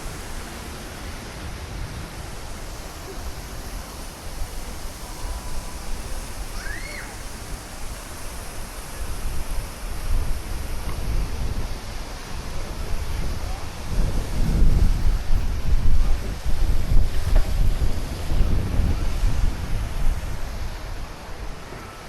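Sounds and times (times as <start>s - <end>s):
wind rushing on microphone: 0.0s - 22.0s.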